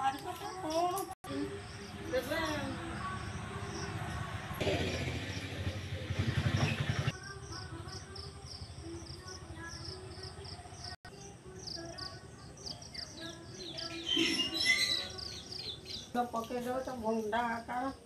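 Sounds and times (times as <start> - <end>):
low engine rumble: 1.4 - 10.4
flurry of bird calls: 9.7 - 16.2
high bird chirp: 11.6 - 16.2.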